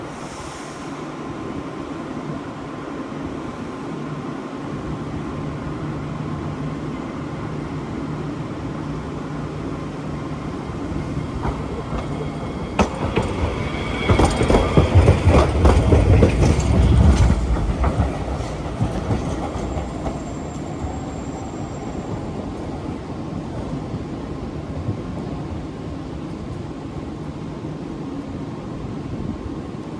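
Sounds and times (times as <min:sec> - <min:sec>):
tram low hum: 0:00.0 - 0:29.9
tram rumble: 0:00.0 - 0:29.9
tram wheels clacking over rail: 0:08.5 - 0:22.7
high squeal: 0:11.6 - 0:15.6, 0:19.6 - 0:22.7.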